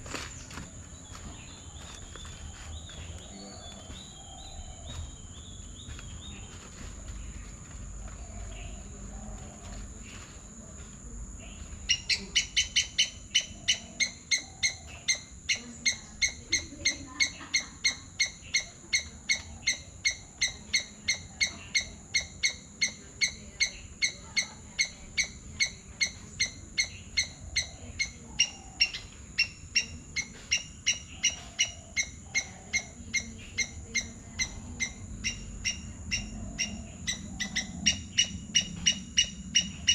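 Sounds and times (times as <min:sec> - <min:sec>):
insects humming: 0:00.0 - 0:39.9
bird calling: 0:11.4 - 0:39.9.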